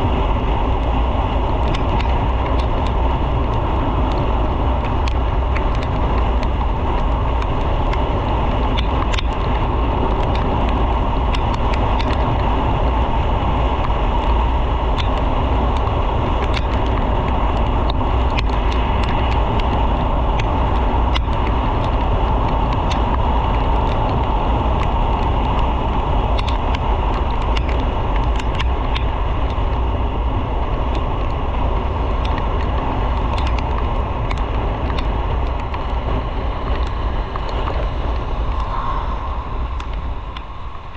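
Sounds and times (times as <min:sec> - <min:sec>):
wind and road noise: 0:00.0 - 0:40.9
faint clicks: 0:04.8 - 0:08.0, 0:08.7 - 0:12.5, 0:20.4 - 0:22.0, 0:26.4 - 0:29.7, 0:32.0 - 0:40.9.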